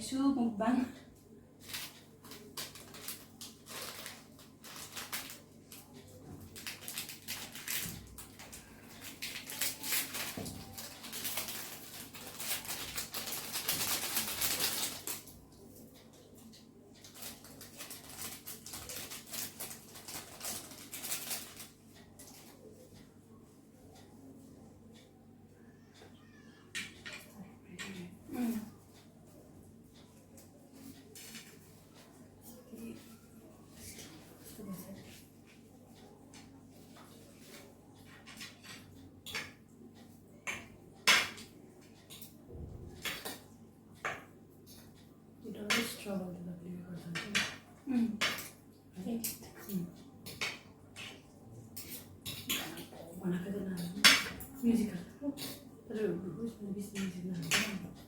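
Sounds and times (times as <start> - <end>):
utensils clinking on plates: 49.2 - 52.9.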